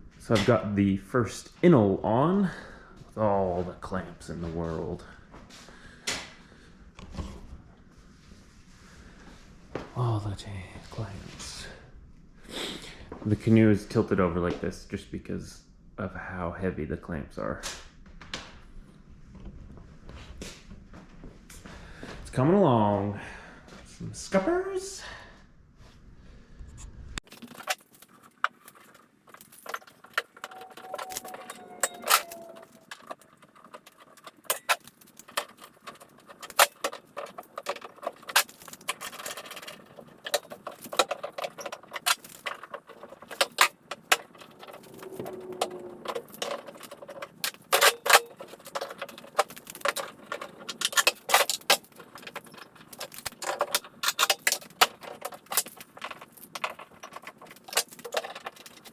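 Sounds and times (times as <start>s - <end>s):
hand tools clinking: 27.2s - 58.9s
brief squeaks: 30.4s - 33.0s.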